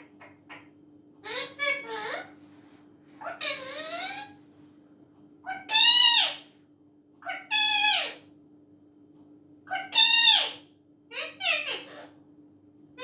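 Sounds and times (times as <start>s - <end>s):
parrot calling loudly: 3.2s - 4.4s, 5.4s - 6.4s, 7.2s - 8.2s, 9.7s - 12.1s.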